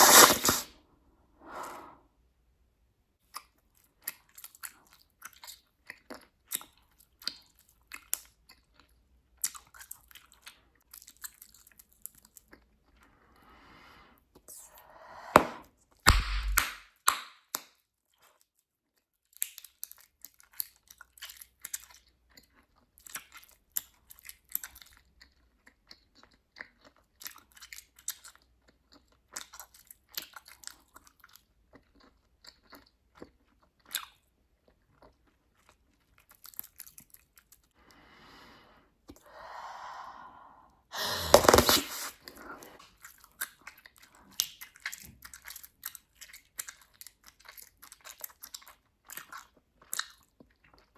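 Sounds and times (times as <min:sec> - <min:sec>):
breath blowing bubble: 0:00.0 - 0:00.7, 0:14.8 - 0:16.6, 0:39.3 - 0:42.8
gum bubble popping: 0:15.4 - 0:16.8
gum chewing wet clicks: 0:16.1 - 0:17.2, 0:42.8 - 0:50.9.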